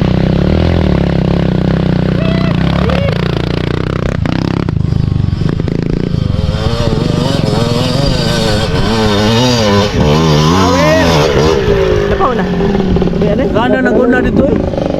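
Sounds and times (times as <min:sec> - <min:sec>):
dirt bike engine revving: 0:00.0 - 0:14.9.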